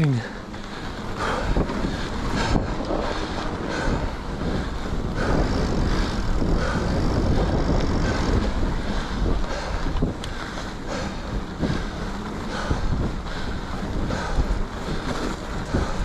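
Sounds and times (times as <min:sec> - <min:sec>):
bike tyres rolling on snow: 0:00.0 - 0:16.0
wind on microphone: 0:00.0 - 0:16.0.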